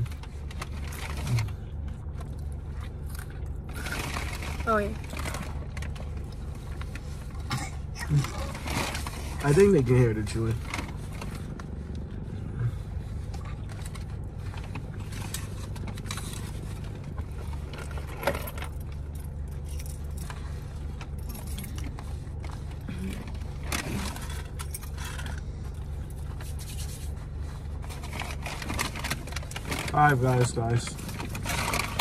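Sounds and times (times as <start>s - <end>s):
low hum inside a car: 0.0s - 32.0s
person chewing: 1.2s - 3.8s.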